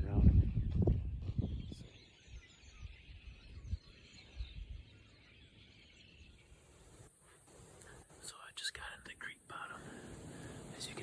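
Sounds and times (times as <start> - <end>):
wind buffeting microphone: 0.0 - 4.9
faint bird chirps: 0.0 - 11.0.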